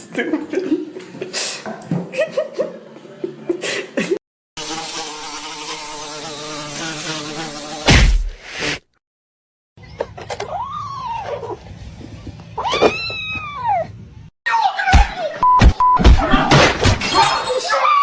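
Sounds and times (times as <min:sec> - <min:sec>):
loud thump: 0:07.9 - 0:08.4.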